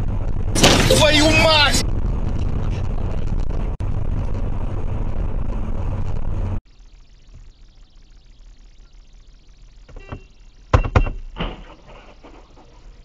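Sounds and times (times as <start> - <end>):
car road and engine rumble: 0.0 - 6.6.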